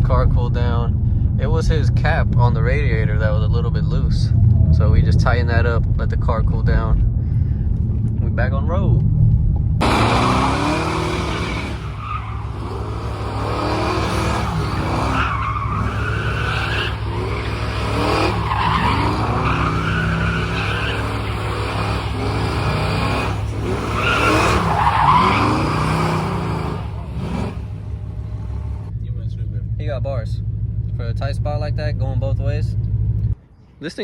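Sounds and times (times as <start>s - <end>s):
car engine revving: 9.5s - 33.4s.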